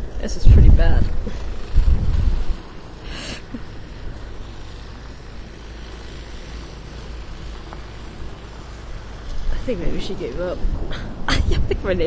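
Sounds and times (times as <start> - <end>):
wind buffeting microphone: 0.0 - 2.8, 8.9 - 12.0.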